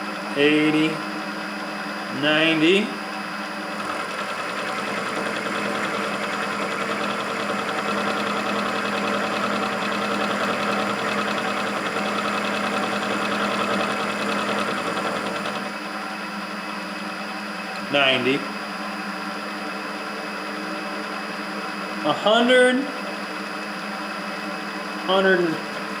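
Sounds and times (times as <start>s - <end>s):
milling machine motor hum: 3.8s - 15.8s.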